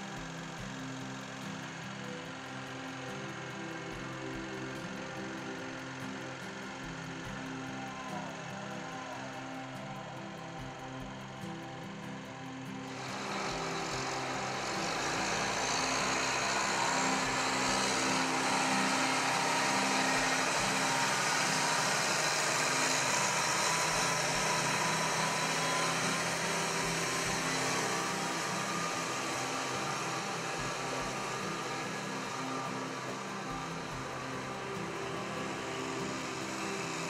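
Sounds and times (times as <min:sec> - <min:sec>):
tractor diesel engine running: 0:12.8 - 0:37.0.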